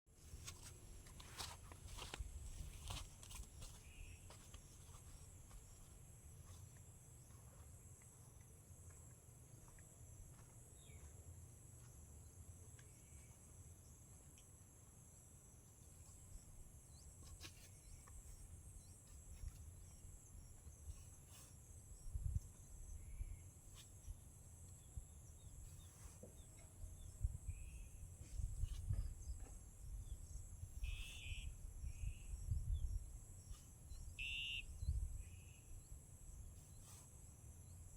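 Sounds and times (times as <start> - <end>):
bird chirps: 24.8 - 36.0.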